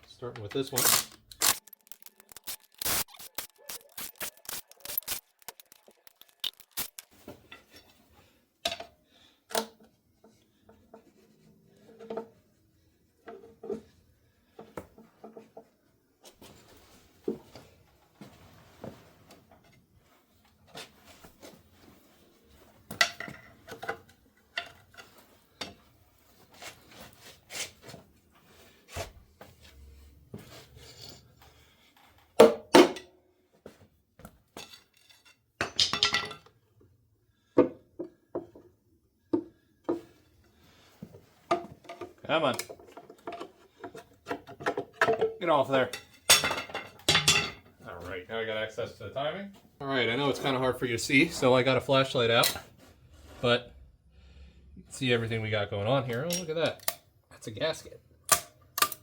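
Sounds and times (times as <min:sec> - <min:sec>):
metal parts clinking and scraping: 0:00.6 - 0:07.8.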